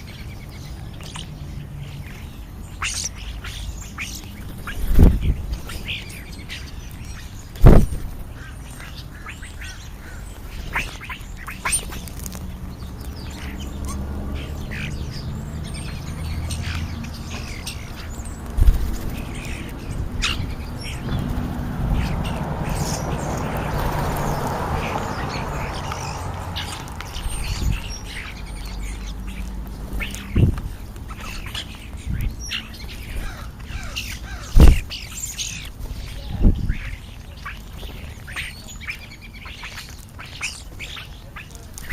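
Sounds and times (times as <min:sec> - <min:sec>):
starlings chattering and whistling: 0:00.0 - 0:41.9
crows calling harshly: 0:33.0 - 0:35.6.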